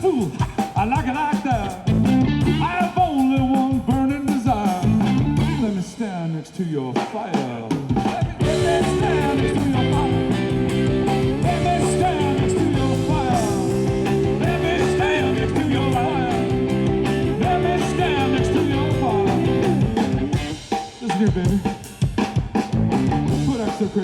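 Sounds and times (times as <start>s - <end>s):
steady drum beat: 0.0s - 24.0s
electric guitar chords: 1.7s - 2.8s, 4.8s - 5.8s, 8.4s - 20.8s, 22.6s - 23.8s.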